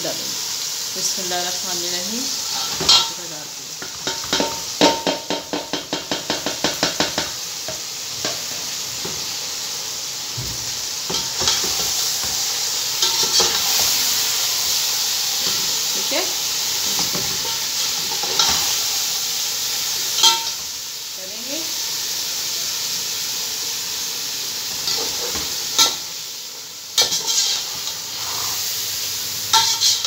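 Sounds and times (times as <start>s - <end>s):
chicken sizzling in hot oil: 0.0s - 30.0s
metal spoon knocking on pot: 3.8s - 7.4s.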